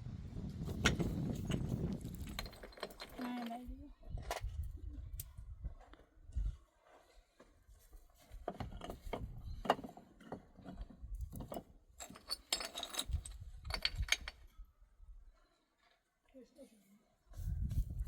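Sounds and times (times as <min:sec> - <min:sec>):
hard objects knocking and clinking: 0:00.8 - 0:03.7, 0:08.4 - 0:14.5.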